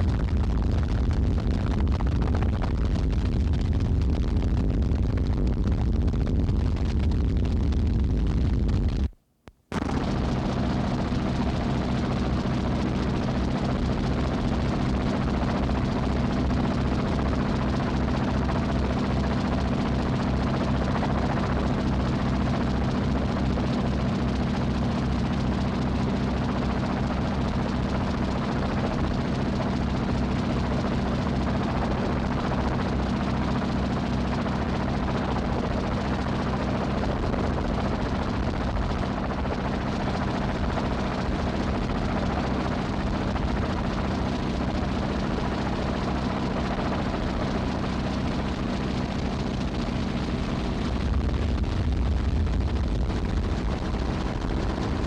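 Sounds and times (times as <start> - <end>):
low engine drone: 9.7 - 55.0.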